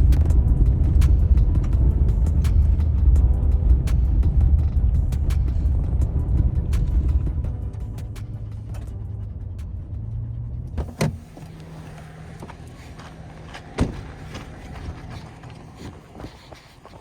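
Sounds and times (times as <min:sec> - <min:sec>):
pickup truck engine hum: 0:00.0 - 0:17.0.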